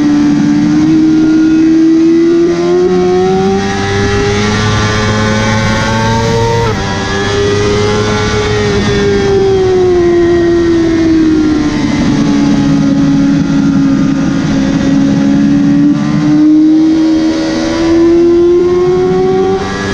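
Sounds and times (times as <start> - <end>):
motorcycle engine at high revs: 0.0 - 19.9
rushing noise: 3.3 - 15.9.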